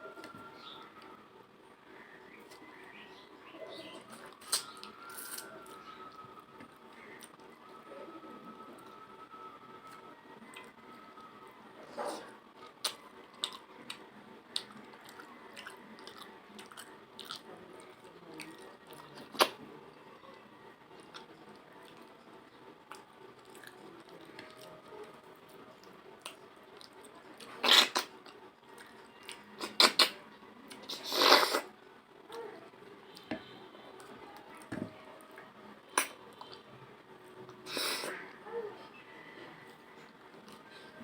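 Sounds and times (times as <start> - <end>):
person chewing food: 12.1 - 14.0, 14.6 - 17.5.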